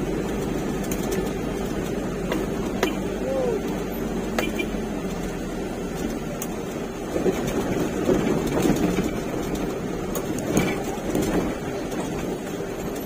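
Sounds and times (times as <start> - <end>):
truck engine droning: 0.0 - 13.0
knocks and rattles: 7.0 - 13.0.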